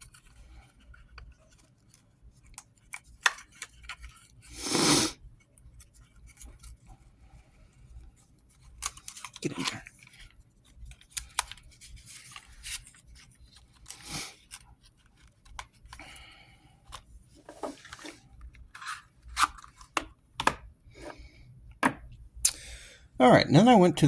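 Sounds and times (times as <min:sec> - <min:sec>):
paper rustling: 0:08.5 - 0:15.9.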